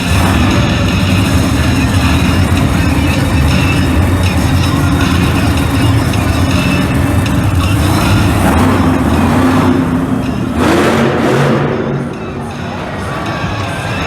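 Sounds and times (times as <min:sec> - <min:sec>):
monster truck engine revving: 0:00.0 - 0:14.0.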